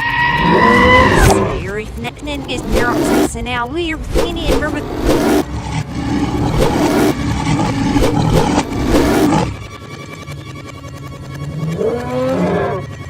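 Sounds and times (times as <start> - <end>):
big cat roaring: 0.1 - 1.6, 11.6 - 12.9.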